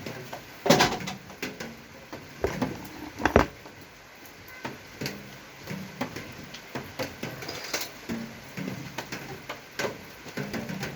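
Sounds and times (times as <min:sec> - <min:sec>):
light clicks and knocks: 0:02.4 - 0:03.7.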